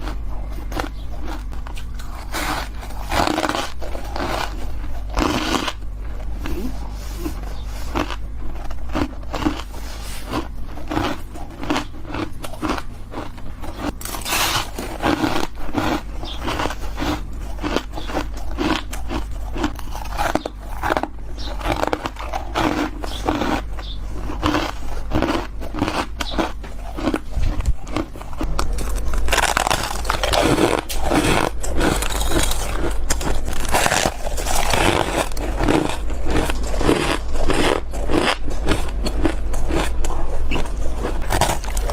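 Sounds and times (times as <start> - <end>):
crunchy frost bites: 10.3 - 41.9.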